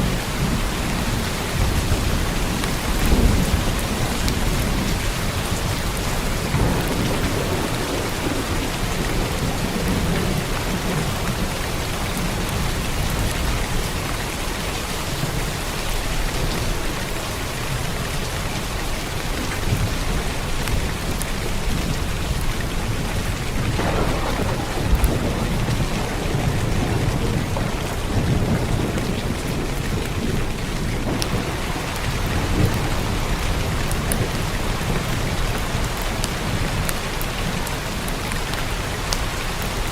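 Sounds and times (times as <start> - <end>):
thunder rumbling: 0.0 - 39.4
heavy rain on a roof: 0.0 - 39.9.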